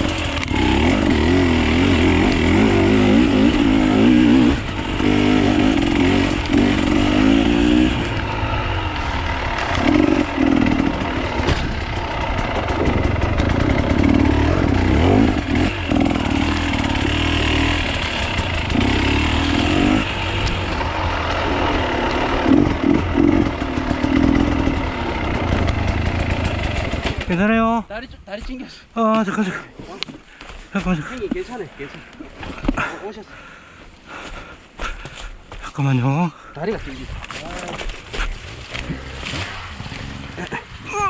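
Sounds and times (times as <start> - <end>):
motorcycle engines revving: 0.0 - 27.4, 36.8 - 41.0.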